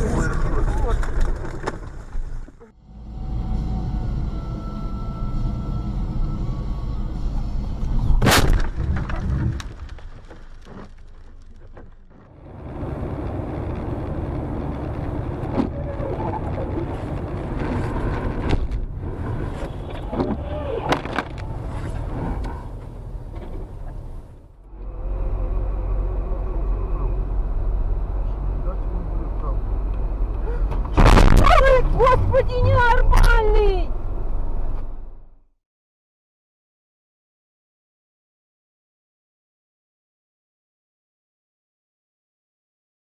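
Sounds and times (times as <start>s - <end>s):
car road and engine rumble: 0.0s - 35.5s
sharp loud bang: 8.2s - 8.8s.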